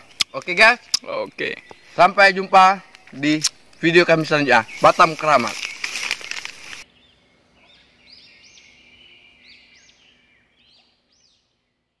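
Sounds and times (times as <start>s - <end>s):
microphone handling rustle: 4.7s - 6.8s.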